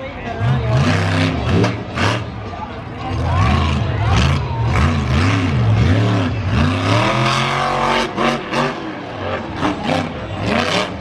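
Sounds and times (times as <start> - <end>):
truck engine revving hard: 0.2 - 11.0.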